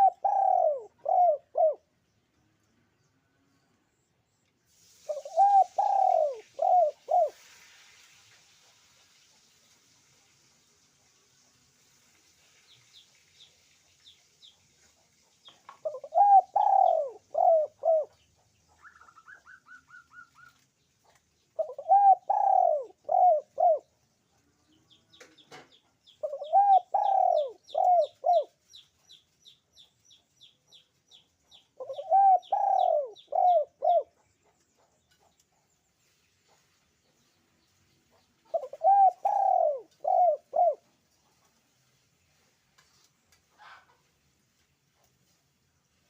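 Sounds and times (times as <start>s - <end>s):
dove cooing: 0.0s - 1.9s, 5.1s - 7.5s, 15.8s - 18.2s, 21.6s - 23.9s, 26.2s - 28.6s, 31.8s - 34.6s, 38.5s - 40.9s
small bird chirping: 12.2s - 46.0s.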